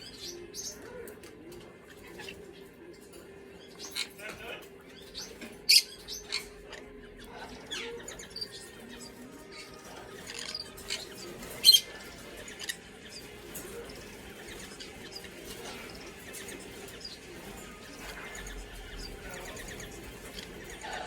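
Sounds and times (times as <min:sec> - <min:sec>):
parrot chirping: 0:03.6 - 0:21.0.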